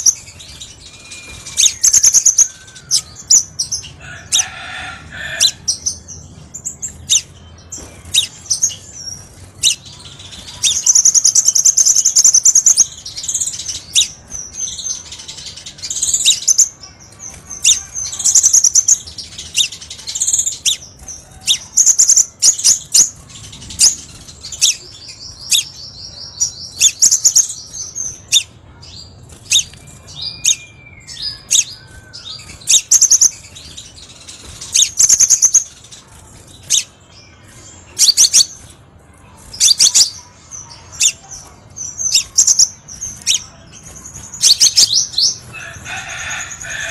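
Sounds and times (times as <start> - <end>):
bird trilling: 29.4 - 35.8.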